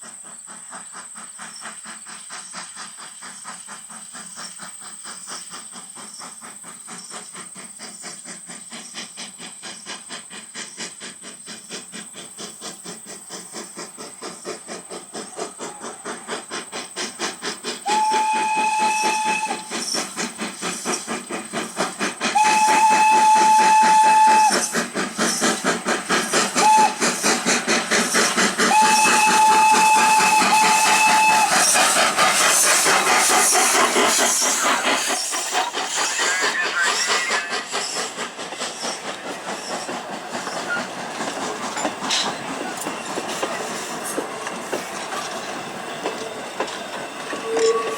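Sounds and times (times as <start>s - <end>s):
steam locomotive chuffing: 0.0s - 47.9s
steam whistle: 17.8s - 19.9s, 22.3s - 24.8s, 26.6s - 27.3s, 28.7s - 31.8s, 47.3s - 47.9s.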